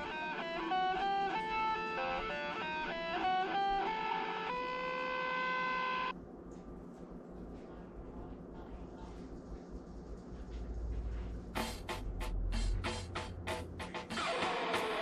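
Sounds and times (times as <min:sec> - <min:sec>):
guitar melodic run: 0:00.0 - 0:06.1, 0:13.8 - 0:15.0.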